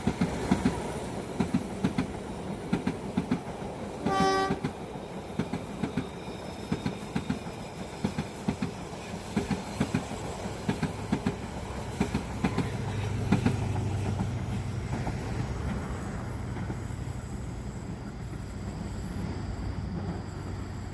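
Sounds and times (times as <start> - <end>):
train wheels clacking: 0.0 - 20.9.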